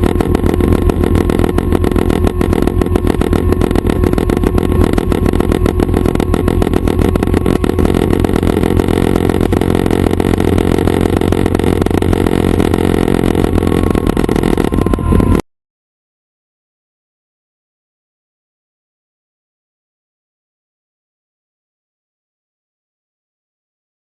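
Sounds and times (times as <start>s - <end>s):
helicopter engine and rotor chop: 0.0s - 15.4s.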